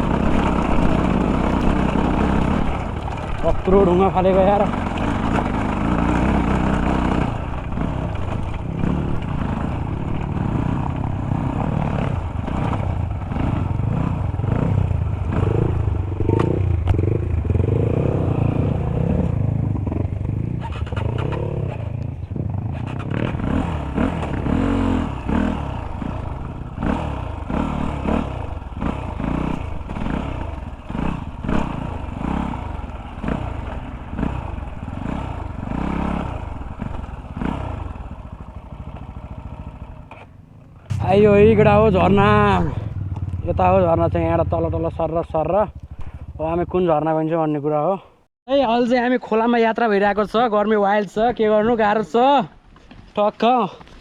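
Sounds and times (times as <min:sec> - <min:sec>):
bike clattering and rattling: 0:00.0 - 0:17.8, 0:20.1 - 0:41.5
dirt bike engine revving: 0:00.0 - 0:47.3.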